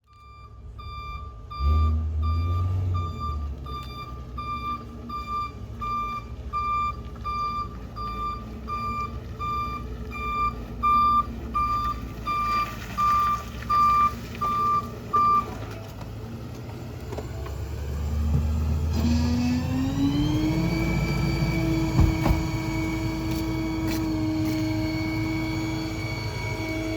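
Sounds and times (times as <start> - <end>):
reversing alarm beeping: 0.0 - 15.6
truck engine running: 0.2 - 26.9.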